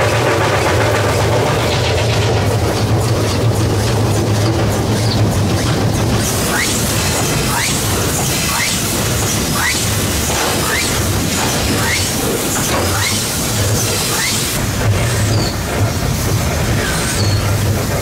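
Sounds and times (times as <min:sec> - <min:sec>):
locomotive working hard: 0:00.0 - 0:18.0
short rising squeak: 0:16.8 - 0:17.5.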